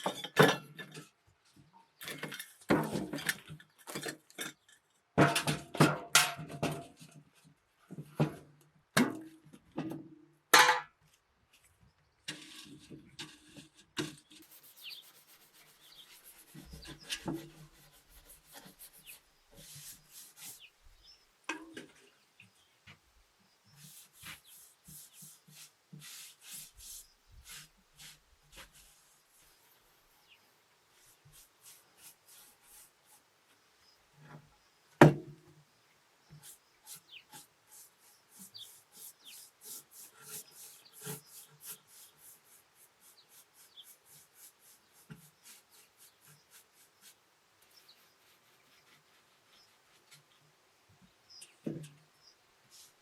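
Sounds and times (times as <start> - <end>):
paintbrush strokes on wood: 14.4 - 21.2, 23.6 - 34.0, 36.2 - 50.5, 52.2 - 53.0.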